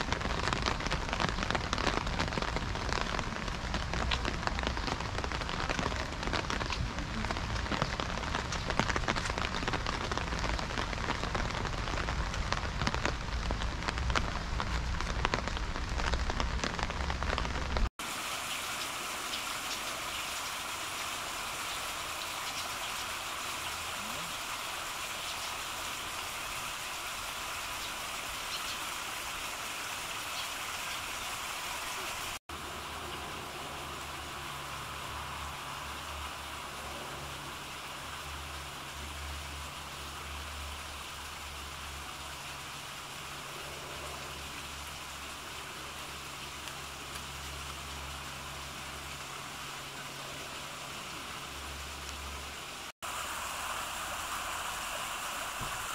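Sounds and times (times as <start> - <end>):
raindrops hitting close by: 0.0 - 55.9
steady rain hiss: 0.0 - 55.9.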